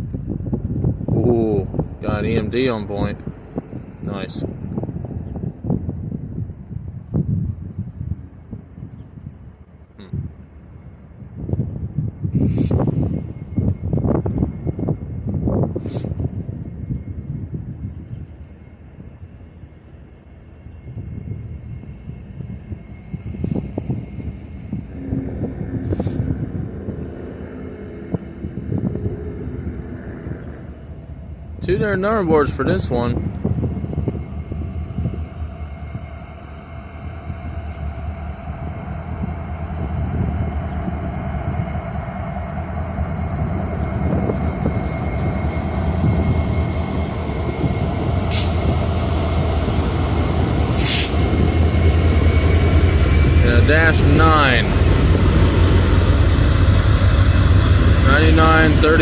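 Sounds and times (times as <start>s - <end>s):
diesel locomotive engine rumble: 0.0s - 59.0s
high wheel squeal: 0.0s - 59.0s
short air hisses: 12.3s - 12.8s, 50.8s - 51.2s.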